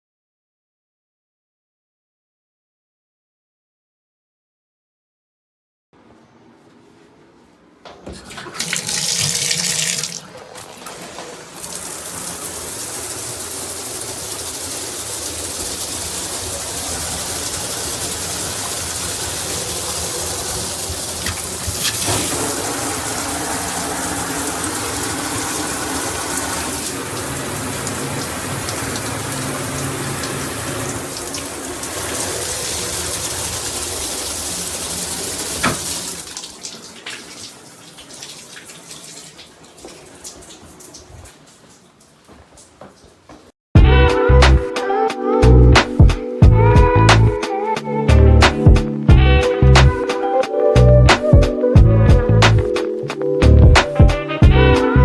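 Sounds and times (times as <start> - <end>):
shower head spraying water: 8.2 - 42.7.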